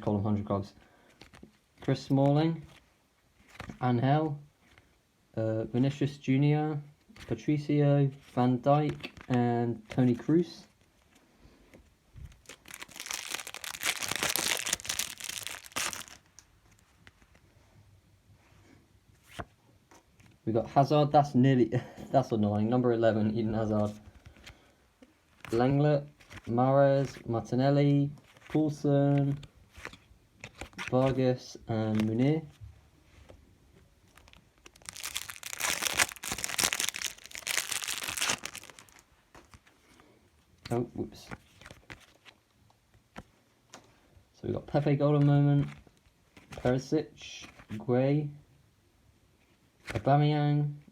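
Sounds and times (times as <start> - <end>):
foil packet tearing and crinkling: 12.4 - 16.3, 34.1 - 39.6.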